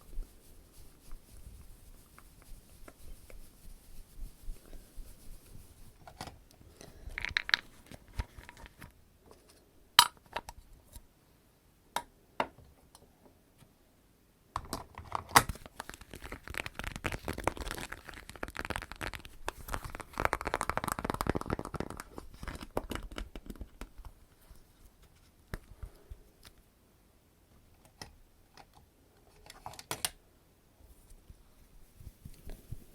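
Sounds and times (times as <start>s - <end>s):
crinkling rustle: 0.0s - 9.5s, 15.2s - 26.6s, 30.9s - 32.9s.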